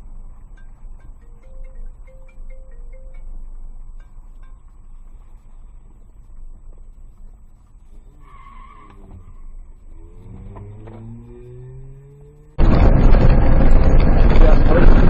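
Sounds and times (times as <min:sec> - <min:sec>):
car engine accelerating: 0:00.0 - 0:15.0
loud rushing noise: 0:12.4 - 0:15.0.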